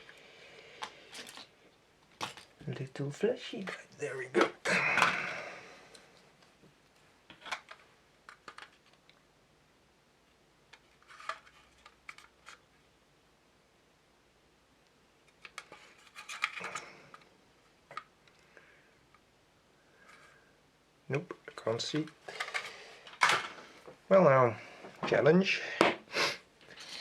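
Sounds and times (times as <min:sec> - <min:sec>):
plastic parts clicking and tapping: 0:07.3 - 0:09.2.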